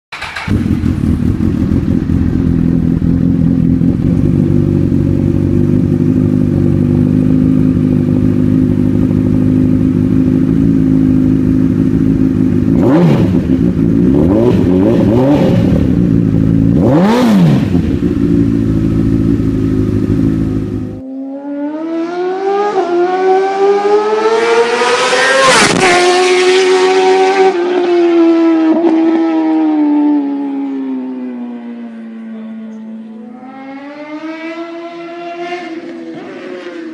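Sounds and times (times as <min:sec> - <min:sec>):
motorcycle engine idling: 0:00.1 - 0:14.8, 0:15.6 - 0:21.0
sport bike engine revving: 0:00.1 - 0:31.3, 0:31.9 - 0:36.9.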